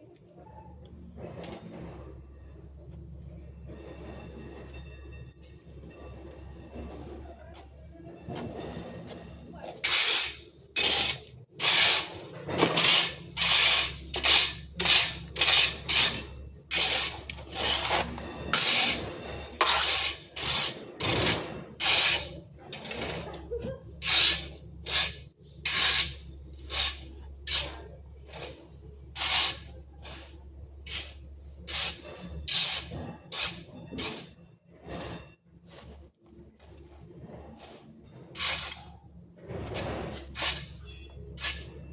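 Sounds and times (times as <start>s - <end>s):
garden tool scraping strokes: 8.4s - 41.9s.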